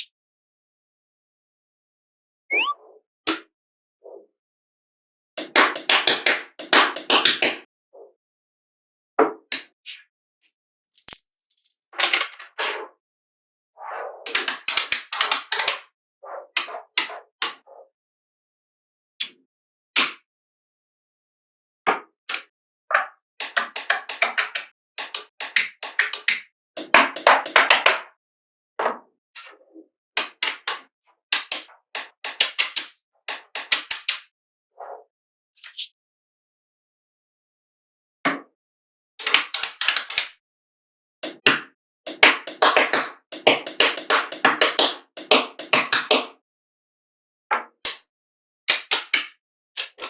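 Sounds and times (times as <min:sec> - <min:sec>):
magnetic balls clicking together: 0:23.4 - 0:27.7, 0:31.4 - 0:34.2, 0:39.2 - 0:40.3, 0:42.1 - 0:46.1, 0:48.7 - 0:50.0.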